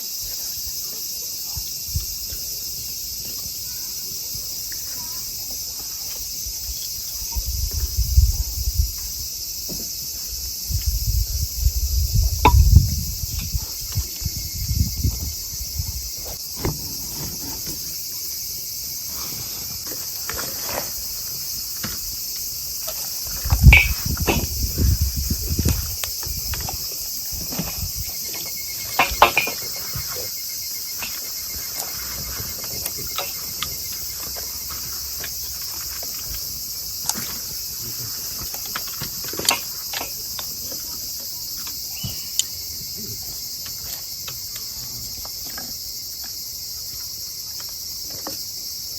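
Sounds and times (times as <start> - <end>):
crickets chirping: 0.0 - 48.9
low thumps: 10.8 - 17.0.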